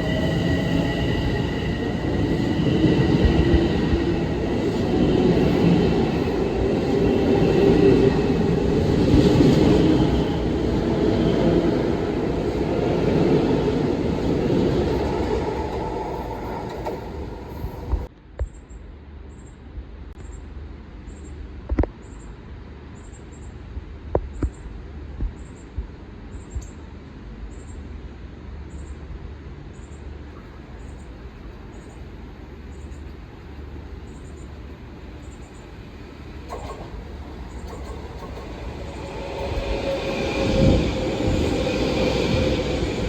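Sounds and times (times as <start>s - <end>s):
distant rail traffic rumble: 0.0s - 18.1s, 19.4s - 43.0s
train passing loudly: 0.0s - 18.1s, 31.4s - 43.0s.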